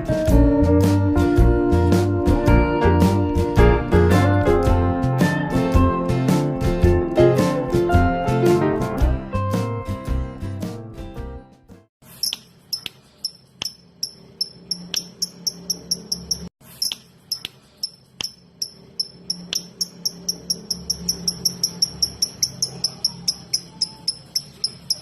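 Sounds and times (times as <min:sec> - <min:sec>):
lovebird high chirps: 0:12.1 - 0:25.0.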